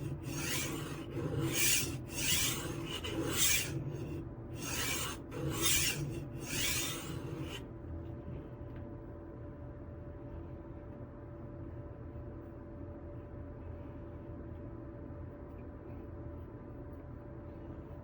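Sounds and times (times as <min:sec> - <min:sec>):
knife sharpener gritty rasp: 0:00.0 - 0:07.6.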